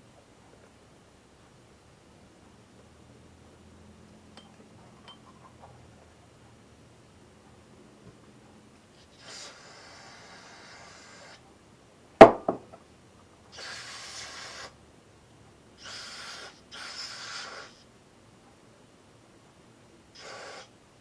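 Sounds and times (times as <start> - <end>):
sharp knock: 12.2 - 12.8
hissing blasts of pressurized spray: 13.5 - 14.8, 20.2 - 20.7.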